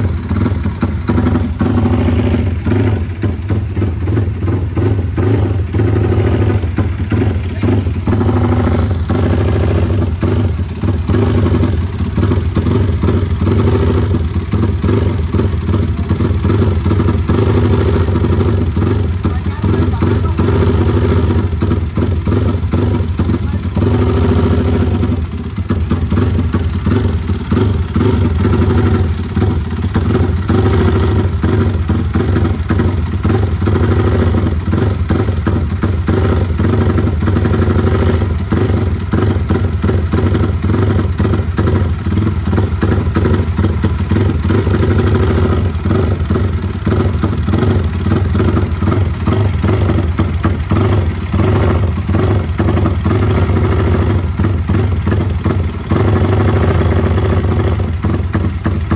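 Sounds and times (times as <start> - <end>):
motorcycle engine running loudly: 0.0 - 58.9.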